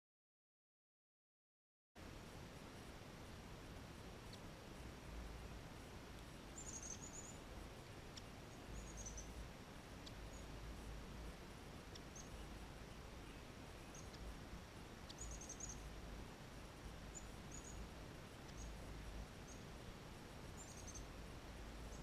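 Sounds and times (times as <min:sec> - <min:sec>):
steady outdoor hiss: 0:02.0 - 0:22.0
faint high bird chirps: 0:06.2 - 0:10.6, 0:11.8 - 0:14.4, 0:15.0 - 0:16.0, 0:17.1 - 0:19.7, 0:20.5 - 0:21.2, 0:21.8 - 0:22.0.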